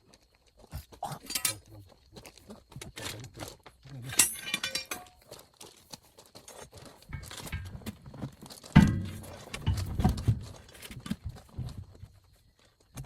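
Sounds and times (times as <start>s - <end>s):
light knocks and clinks: 1.2s - 1.7s, 4.0s - 5.4s, 7.1s - 10.3s.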